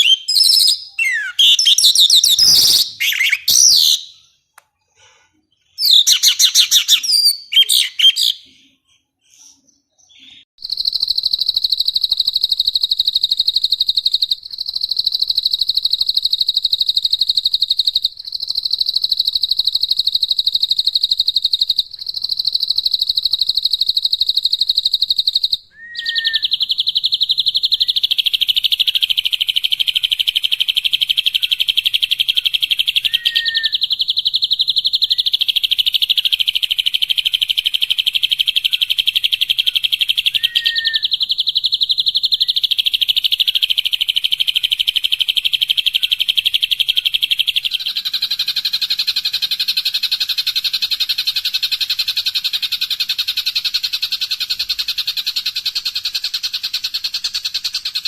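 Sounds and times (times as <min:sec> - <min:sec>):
short bird chirp: 0:00.0 - 0:10.5, 0:25.8 - 0:26.7
songbird rapid trill: 0:00.0 - 0:58.0.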